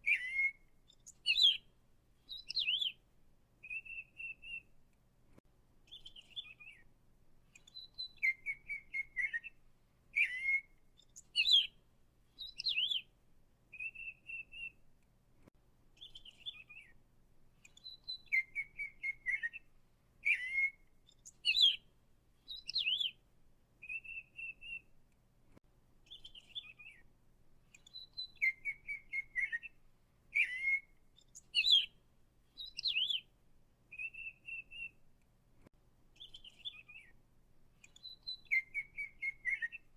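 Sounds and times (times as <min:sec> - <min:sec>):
songbird whistles and trills: 0:00.0 - 0:03.0, 0:03.6 - 0:04.8, 0:05.9 - 0:06.9, 0:07.5 - 0:13.1, 0:13.7 - 0:14.8, 0:16.0 - 0:17.0, 0:17.6 - 0:23.2, 0:23.8 - 0:24.9, 0:26.1 - 0:27.1, 0:27.7 - 0:33.3, 0:33.9 - 0:35.0, 0:36.2 - 0:37.2, 0:37.8 - 0:39.9.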